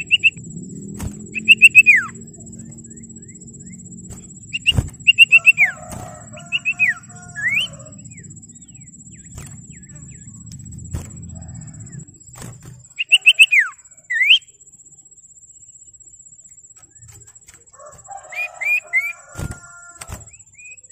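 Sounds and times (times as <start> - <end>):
bird whistled calls: 0.0 - 0.4, 1.0 - 10.3, 12.8 - 14.5.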